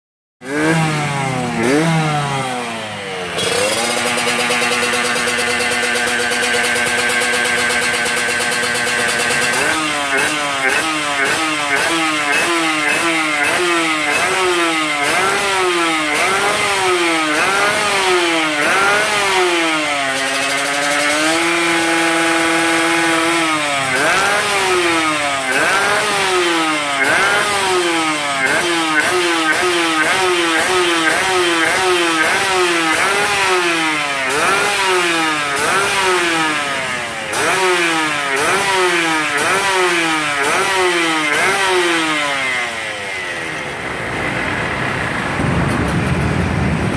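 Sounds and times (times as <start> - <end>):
motorcycle engine revving: 0.4 - 46.9.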